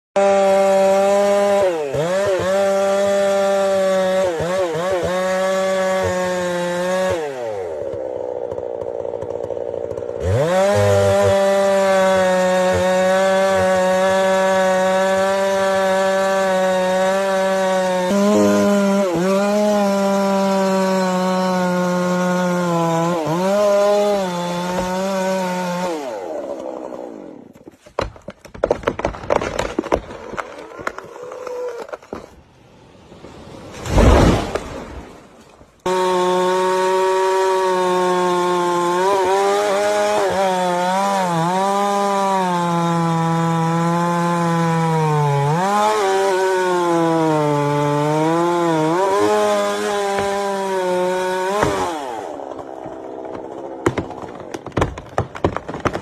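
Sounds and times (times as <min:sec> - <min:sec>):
chainsaw engine cutting wood: 0:00.2 - 0:32.4, 0:33.8 - 0:56.0
sharp cracks and thumps: 0:27.5 - 0:32.4, 0:33.8 - 0:35.9, 0:49.0 - 0:50.6, 0:51.4 - 0:56.0.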